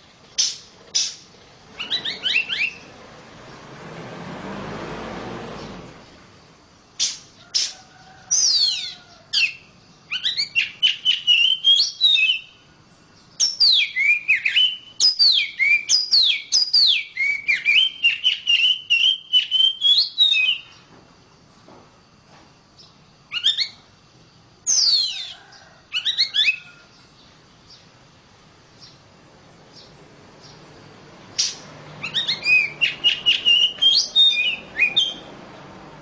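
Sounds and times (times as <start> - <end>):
bird singing whistled phrases: 1.8 - 2.9, 8.4 - 12.6, 13.4 - 20.8, 23.3 - 23.8, 24.7 - 25.4, 31.4 - 35.3.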